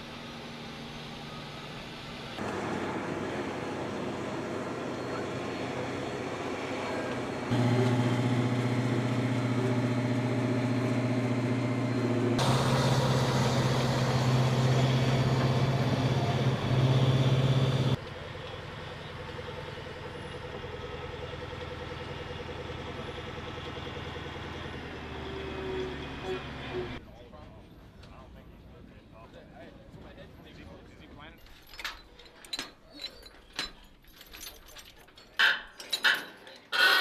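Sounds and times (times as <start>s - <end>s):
heavy vehicle engine droning: 0.0s - 27.0s.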